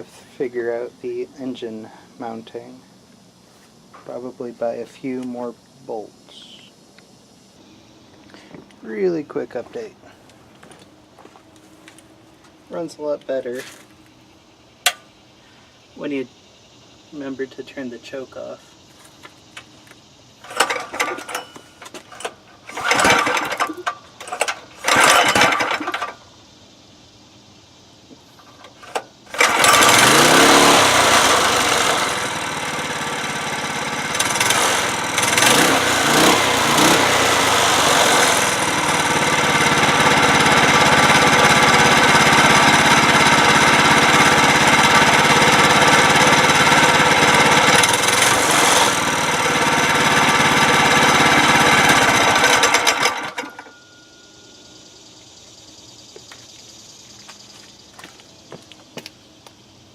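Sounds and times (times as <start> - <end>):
small gas engine revving: 20.4 - 21.4, 22.7 - 26.2, 28.8 - 53.6.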